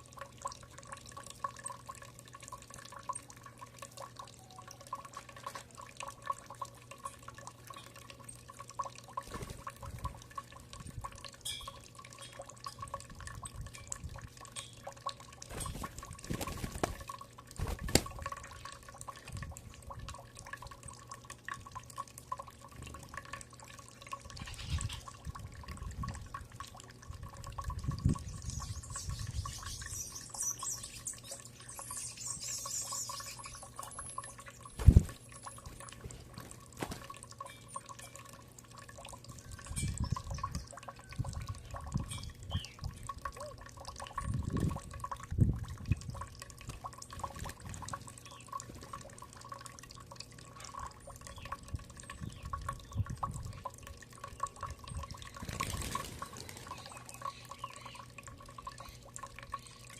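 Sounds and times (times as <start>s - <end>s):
water dripping and trickling: 0.0s - 59.9s
faint high bird chirps: 28.2s - 34.6s, 41.6s - 42.8s, 56.4s - 58.1s.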